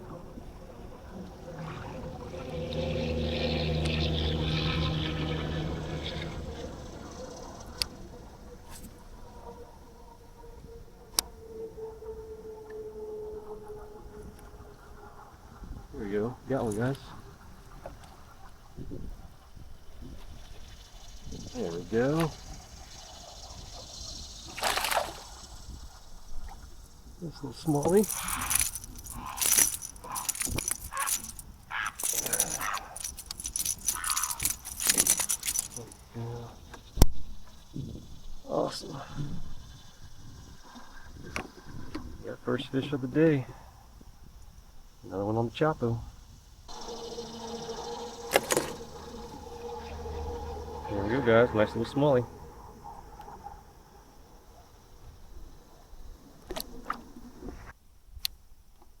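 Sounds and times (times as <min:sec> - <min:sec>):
faint rustling handling noise: 0:27.7 - 0:36.0
fishing lure hooks jangling: 0:27.7 - 0:36.1, 0:46.7 - 0:53.6.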